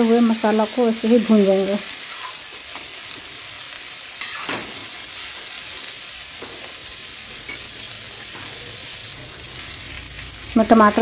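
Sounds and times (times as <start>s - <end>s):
vegetables sizzling in a pan: 0.0s - 11.0s
spatula scraping a pan: 1.9s - 3.3s, 4.2s - 5.9s.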